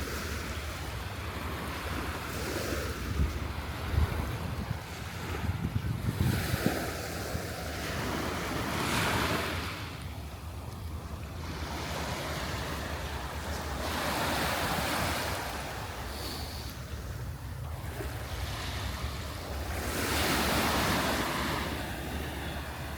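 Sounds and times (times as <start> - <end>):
wind buffeting microphone: 0.0 - 22.9
surf washing up on beach: 11.0 - 22.9.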